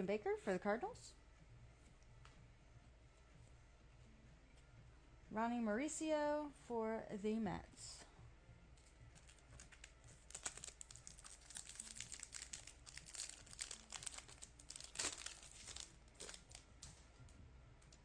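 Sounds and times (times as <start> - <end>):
foil wrapper crinkling and tearing: 9.2 - 16.7.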